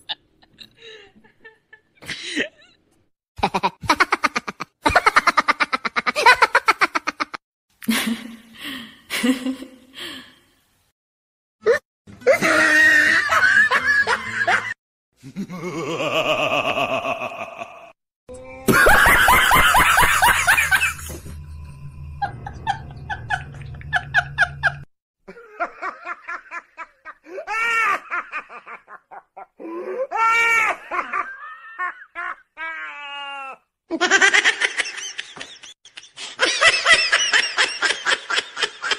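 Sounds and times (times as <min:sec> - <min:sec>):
people laughing: 0:12.3 - 0:17.9, 0:18.7 - 0:21.2, 0:22.2 - 0:29.5, 0:30.4 - 0:32.9, 0:33.9 - 0:38.9.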